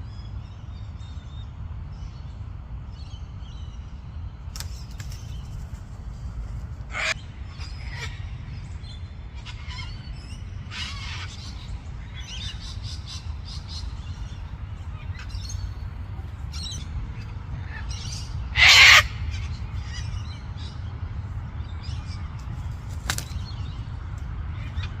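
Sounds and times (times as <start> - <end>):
birds chirping: 0.0 - 25.0
bird harsh squawk: 6.9 - 7.2, 17.7 - 20.0.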